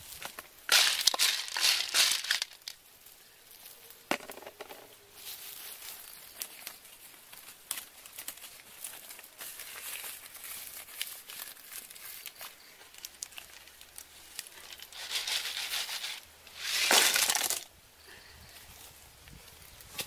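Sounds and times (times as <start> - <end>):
dry leaves rustling and crinkling: 0.0 - 17.7
wood fire crackling: 5.6 - 15.0.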